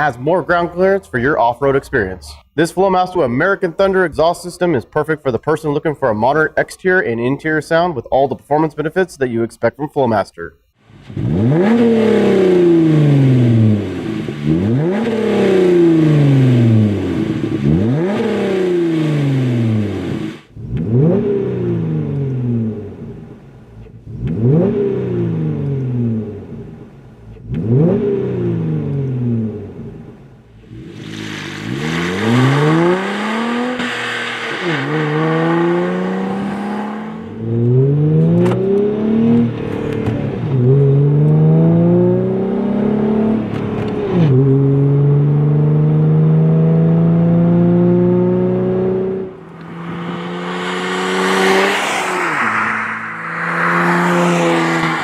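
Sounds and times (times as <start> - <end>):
car exhaust accelerating through gears: 10.9 - 55.0.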